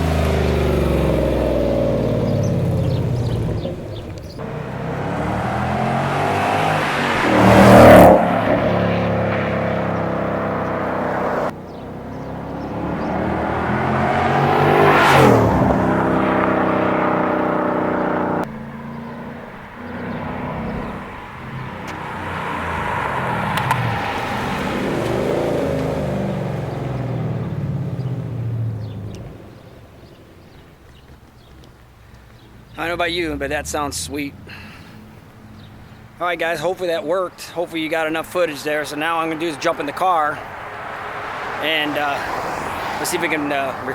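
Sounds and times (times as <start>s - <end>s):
car accelerating past: 0.0s - 30.2s, 38.2s - 43.9s.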